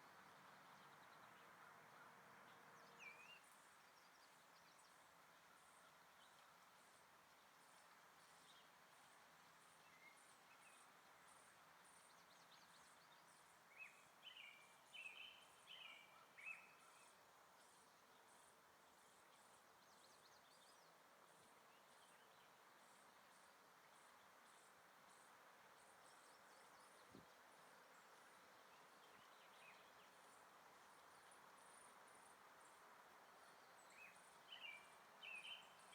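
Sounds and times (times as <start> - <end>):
bird chirping: 33.4 - 35.9.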